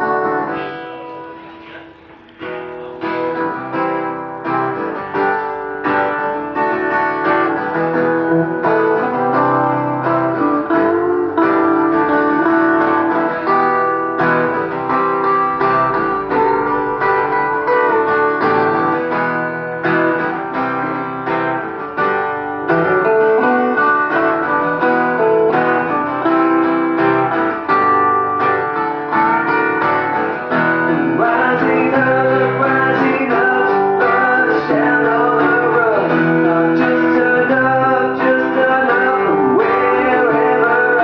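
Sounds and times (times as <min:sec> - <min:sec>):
strummed acoustic guitar: 0:00.0 - 0:41.0
person singing: 0:30.6 - 0:41.0.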